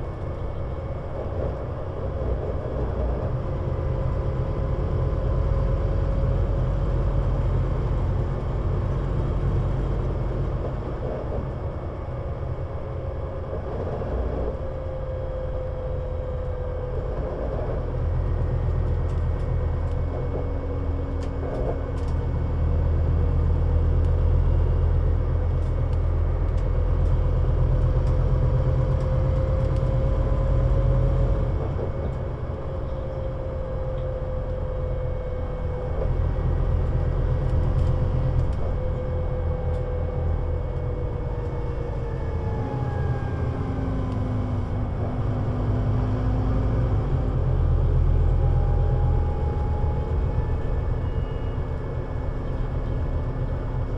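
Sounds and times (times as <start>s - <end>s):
bus engine rumble: 0.0s - 53.9s.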